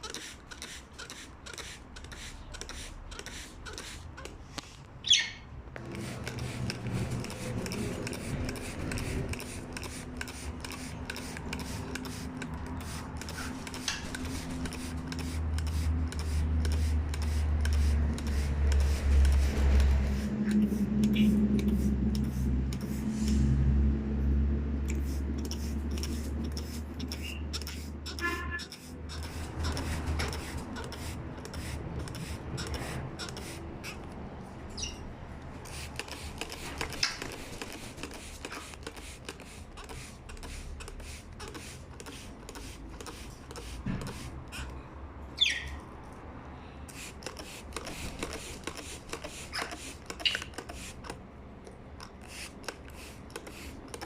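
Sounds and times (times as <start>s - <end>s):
parrot chirping: 5.0s - 5.5s, 34.7s - 35.1s, 45.4s - 45.8s.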